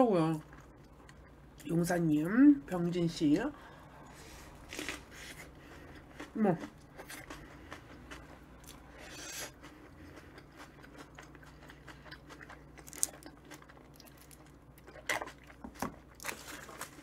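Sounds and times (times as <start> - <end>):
person chewing a sandwich: 3.9 - 17.0.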